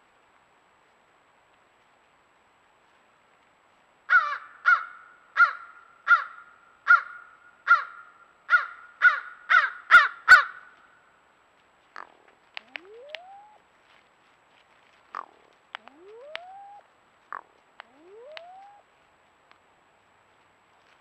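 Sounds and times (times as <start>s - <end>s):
crow cawing: 4.1s - 10.7s.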